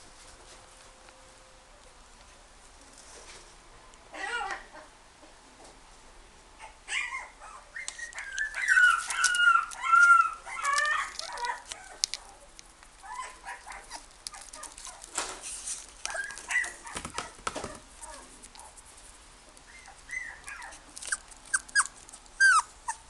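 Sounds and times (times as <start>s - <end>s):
puppy whining and yelping: 6.6s - 12.4s, 13.0s - 15.1s, 16.1s - 18.8s, 19.7s - 23.0s
scuffling noise: 13.0s - 19.3s.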